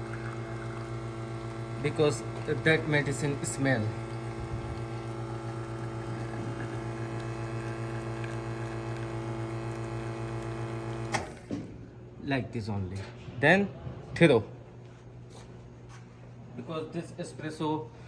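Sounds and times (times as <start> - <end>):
espresso machine pump hum: 0.0 - 11.5.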